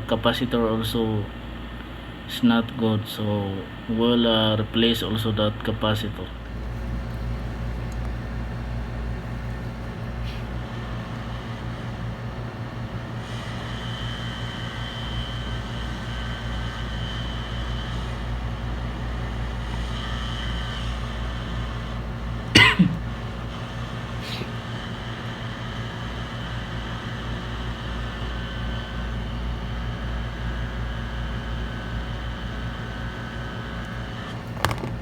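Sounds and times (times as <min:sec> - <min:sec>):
bench equipment humming: 0:00.0 - 0:35.0
person coughing: 0:22.5 - 0:23.0, 0:24.2 - 0:24.5.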